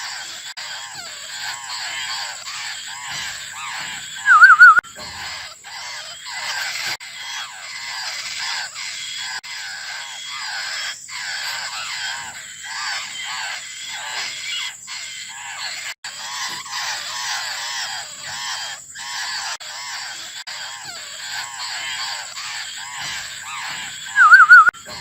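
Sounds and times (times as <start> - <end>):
young birds begging calls: 0.0 - 25.0.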